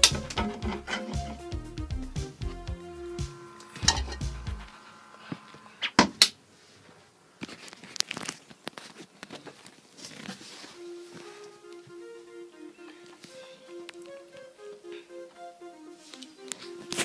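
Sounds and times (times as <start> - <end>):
faint music: 0.0 - 5.8, 9.5 - 17.0.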